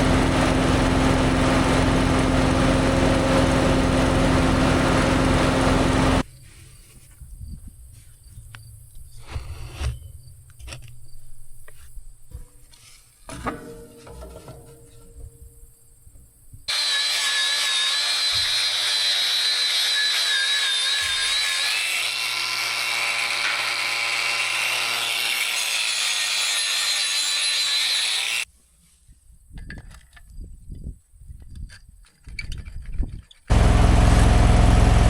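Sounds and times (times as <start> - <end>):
power tool whining on metal: 0.0 - 6.2, 16.7 - 28.5.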